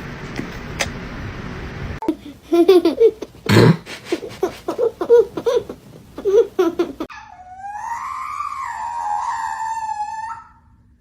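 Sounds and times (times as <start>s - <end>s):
animal wavering wail: 7.1s - 10.8s.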